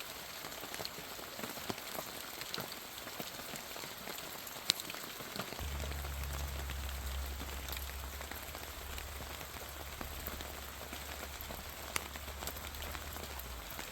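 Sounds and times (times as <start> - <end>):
rain pattering on leaves: 0.0 - 13.9
low steady hum: 5.6 - 13.9.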